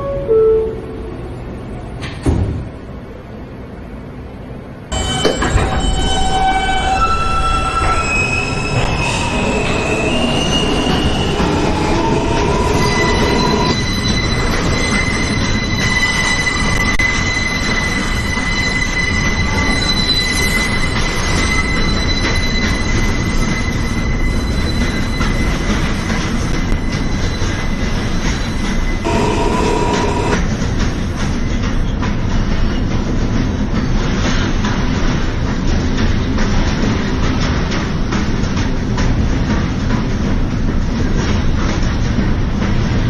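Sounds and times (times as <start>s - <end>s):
train car rumble: 0.0s - 43.0s
wheels squealing on rails: 4.9s - 37.9s
traction motors whining: 29.0s - 30.4s.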